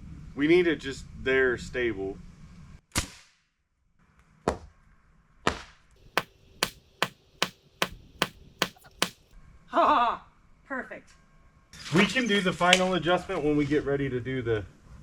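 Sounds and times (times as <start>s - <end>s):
hammer blows on wood: 6.2s - 9.2s.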